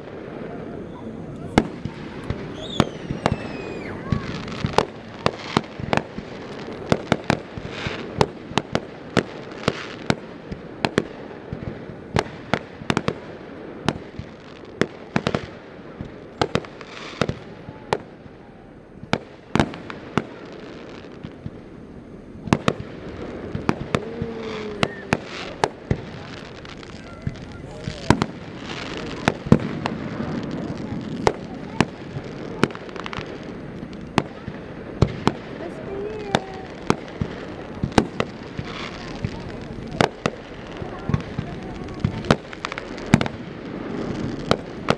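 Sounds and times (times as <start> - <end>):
fireworks shells bursting: 0.0 - 8.2
crackle and echo rumble: 0.0 - 44.9.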